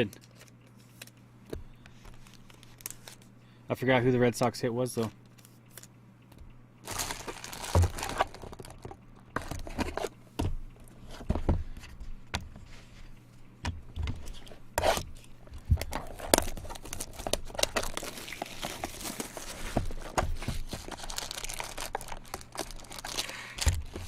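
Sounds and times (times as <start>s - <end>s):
card pack wrappers tearing: 2.2s - 3.3s, 6.8s - 10.0s, 15.8s - 24.0s.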